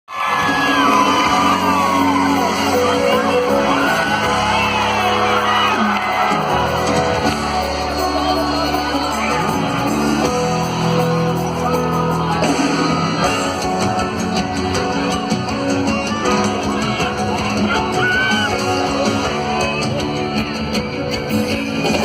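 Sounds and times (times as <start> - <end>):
people shouting: 0.1 - 7.3, 16.1 - 18.6
live band music over speakers: 0.1 - 22.0.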